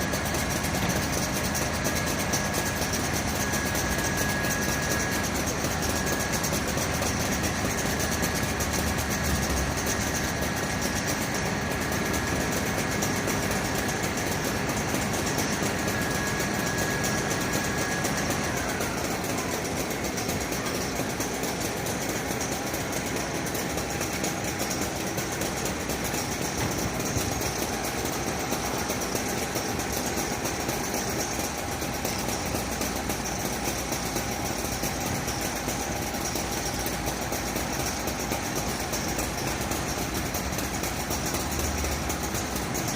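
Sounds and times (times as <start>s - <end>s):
fire truck engine idling: 0.0s - 42.9s.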